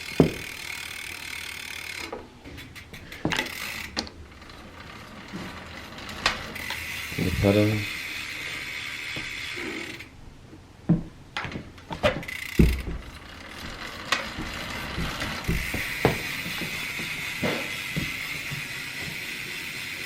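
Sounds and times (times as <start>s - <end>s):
hand tools clicking on metal: 0.0s - 7.8s.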